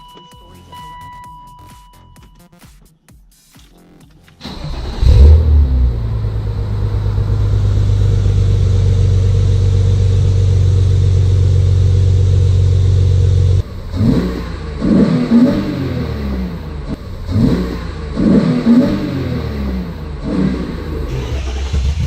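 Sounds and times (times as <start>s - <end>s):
car engine idling and revving: 4.4s - 22.0s.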